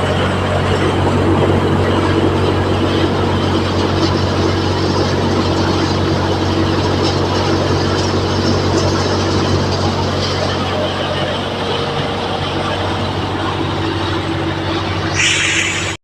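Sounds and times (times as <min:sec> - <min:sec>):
tractor engine drone: 0:00.0 - 0:16.0.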